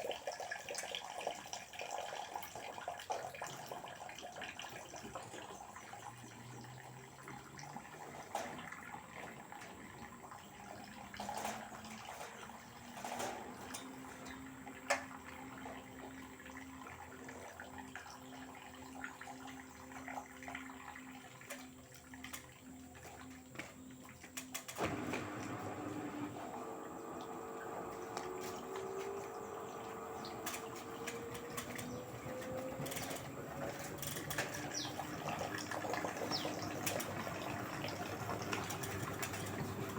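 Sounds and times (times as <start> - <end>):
water sloshing in washing machine: 0.0 - 39.9
washing machine motor hum: 1.4 - 39.9
water rushing: 24.8 - 39.9.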